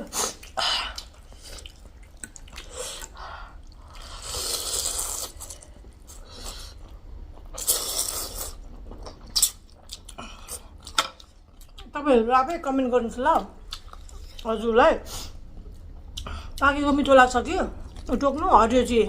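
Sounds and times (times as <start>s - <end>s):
chewing: 0.3s - 11.9s, 13.7s - 14.5s
slurping noodle soup: 3.8s - 6.9s, 7.5s - 9.6s.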